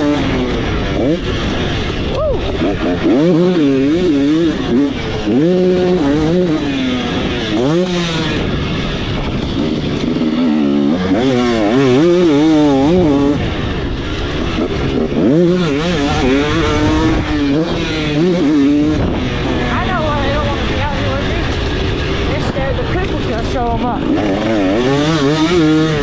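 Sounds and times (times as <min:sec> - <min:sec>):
two-stroke motorcycle engine revving: 0:00.0 - 0:26.0.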